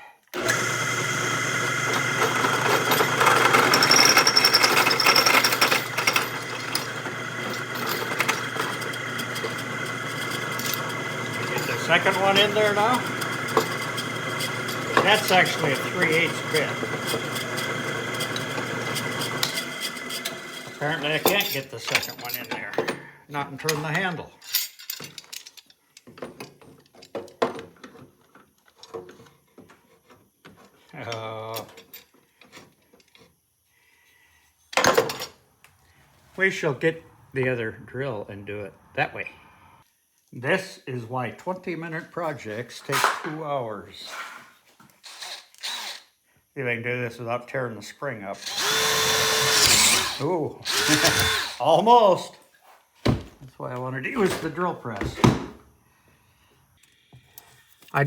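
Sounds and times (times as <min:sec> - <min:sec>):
electric drill drilling steel: 0:00.4 - 0:21.4, 0:45.1 - 0:46.1, 0:48.4 - 0:51.8.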